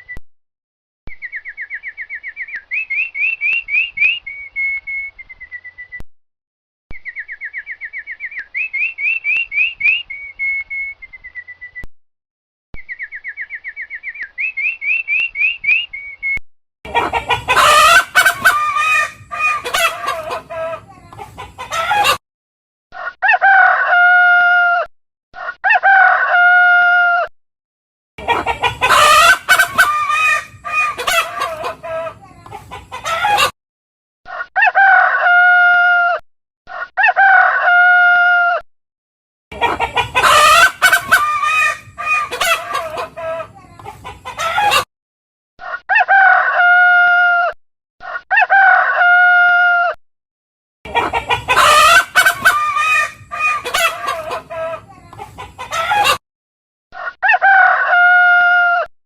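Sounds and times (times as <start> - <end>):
chickens clucking: 16.9 - 22.2, 28.2 - 33.5, 39.5 - 44.9, 50.9 - 56.2
rooster crowing: 57.0 - 58.9.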